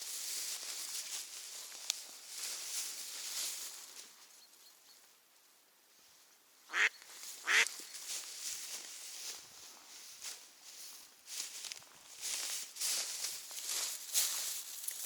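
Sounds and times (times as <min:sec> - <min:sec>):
faint rustling: 0:00.0 - 0:04.4
duck quacking: 0:06.7 - 0:07.7.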